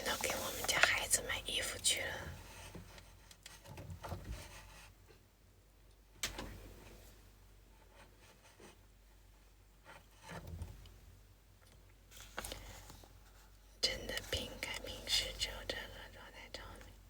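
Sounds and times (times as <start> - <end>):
rustling and handling noises: 0.0 - 4.8, 12.1 - 15.4.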